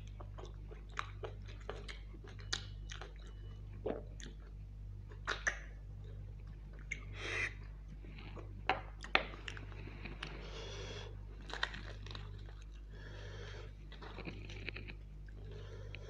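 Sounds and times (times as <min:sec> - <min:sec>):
wet chewing: 0:00.0 - 0:07.1, 0:08.2 - 0:16.0
steady low hum: 0:00.0 - 0:16.0
lip smacks: 0:05.1 - 0:05.8, 0:06.8 - 0:07.7
sharp mouth clicks: 0:05.1 - 0:05.8.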